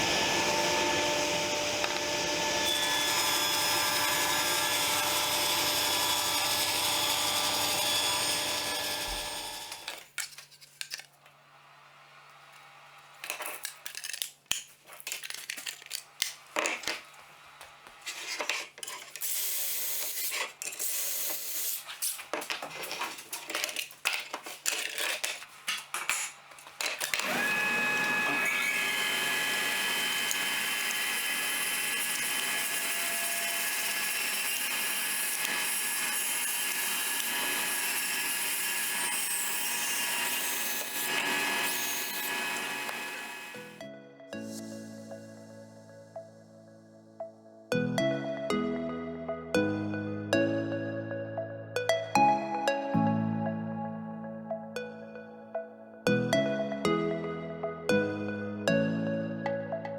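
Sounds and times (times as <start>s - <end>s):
wood and tools clattering: 9.1s - 11.3s, 13.2s - 19.4s, 21.8s - 27.4s
power tool motor whining: 27.0s - 43.8s.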